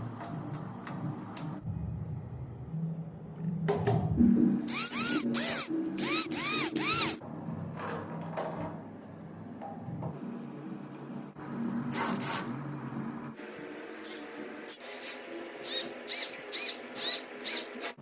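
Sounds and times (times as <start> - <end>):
electric drill bursts: 4.7 - 7.2, 14.8 - 18.0.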